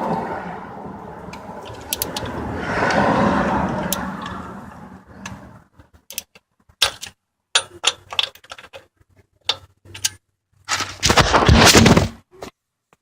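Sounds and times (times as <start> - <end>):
tools and parts clacking: 1.3 - 2.4, 5.2 - 12.0
loud scraping rustle: 10.6 - 12.2.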